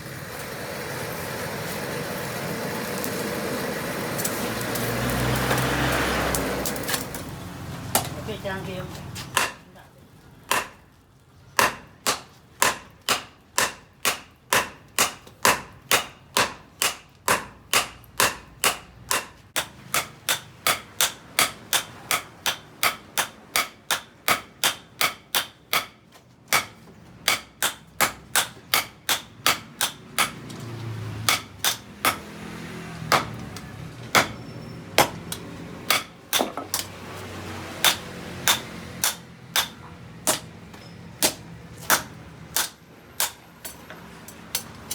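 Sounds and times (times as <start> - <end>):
hammer striking steel: 9.3 - 9.6, 10.5 - 10.8, 11.6 - 32.5, 33.1 - 37.0, 37.8 - 43.9.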